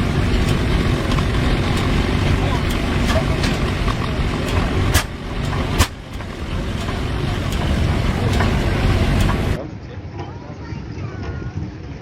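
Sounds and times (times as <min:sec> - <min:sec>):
tractor engine rumbling: 0:00.0 - 0:09.6.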